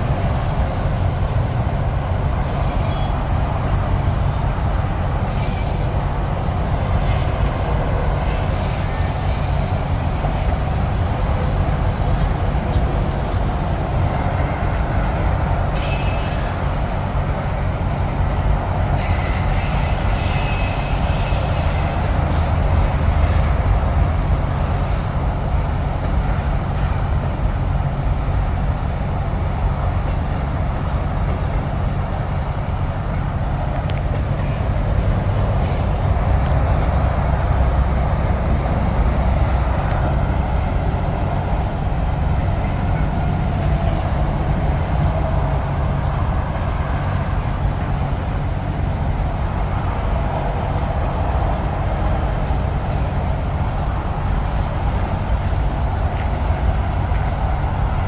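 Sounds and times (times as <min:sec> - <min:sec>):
freight train rumble: 0:00.0 - 0:58.0
wheel squeals: 0:01.8 - 0:03.3, 0:08.1 - 0:12.9, 0:15.7 - 0:16.9, 0:18.3 - 0:23.5, 0:28.7 - 0:29.7, 0:54.4 - 0:55.6.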